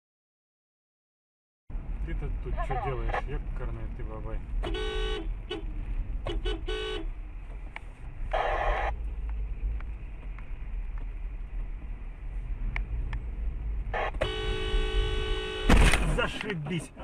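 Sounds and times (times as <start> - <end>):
car rumble from inside: 1.7 - 17.0
car horn honking: 4.6 - 7.2, 13.9 - 16.0.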